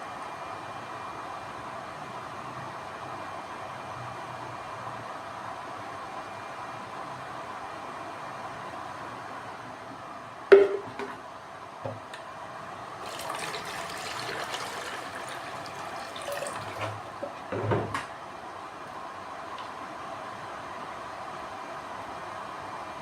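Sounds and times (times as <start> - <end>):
water pouring into container: 13.0 - 17.2
thump: 17.5 - 18.0.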